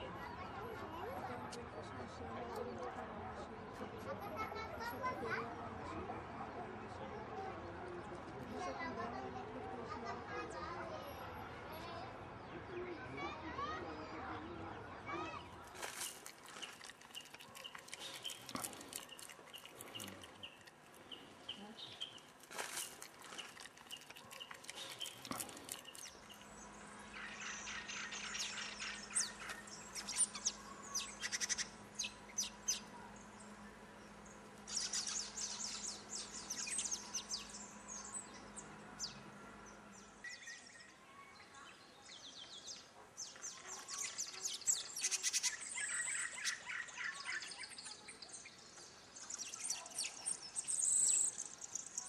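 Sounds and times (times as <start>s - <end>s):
birds chirping and trilling: 12.2s - 52.0s.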